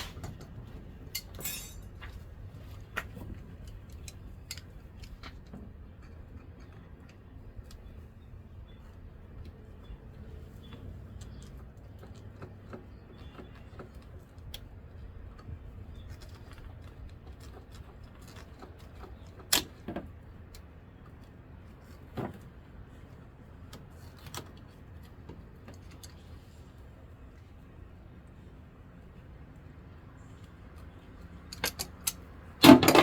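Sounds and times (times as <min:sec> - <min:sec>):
light clicks of hose fittings: 0:02.0 - 0:08.0.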